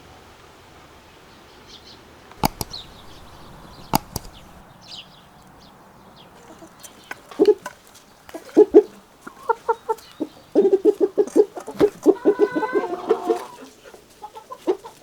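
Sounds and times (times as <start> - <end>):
small birds chirping: 1.7 - 14.5
light click: 2.4 - 4.6
sharp knocks: 2.4 - 4.6
hen clucking: 6.4 - 15.0.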